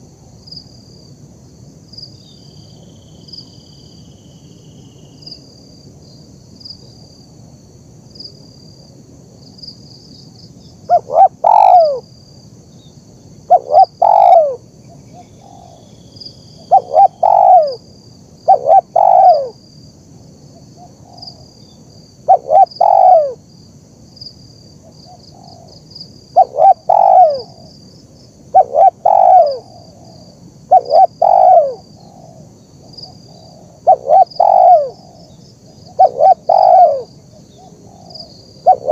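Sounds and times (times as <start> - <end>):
insects chirring: 0.0 - 38.9
dove cooing: 10.9 - 12.0, 13.5 - 14.6, 16.6 - 17.8, 18.5 - 19.6, 22.3 - 23.4, 26.4 - 27.7, 28.5 - 32.5, 33.3 - 38.9.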